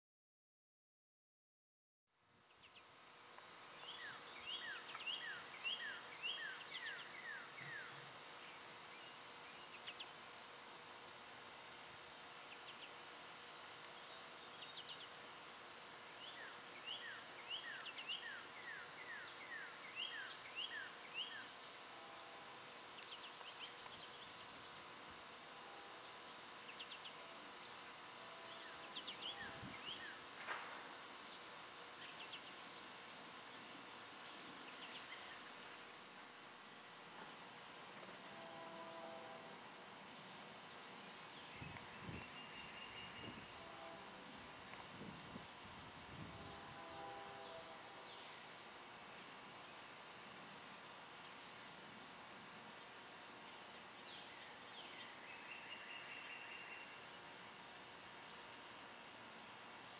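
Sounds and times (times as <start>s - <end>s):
bird chirping: 3.8s - 10.2s, 16.2s - 22.2s.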